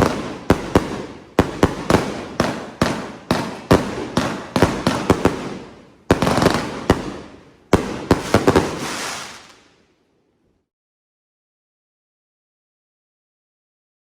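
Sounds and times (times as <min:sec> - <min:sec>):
fireworks bangs: 0:00.0 - 0:09.9.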